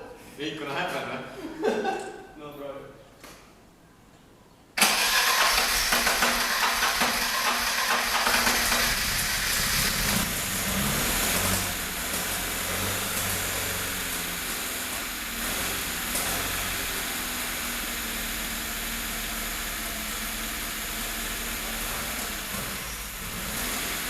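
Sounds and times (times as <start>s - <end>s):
car engine running unevenly: 5.2s - 24.0s.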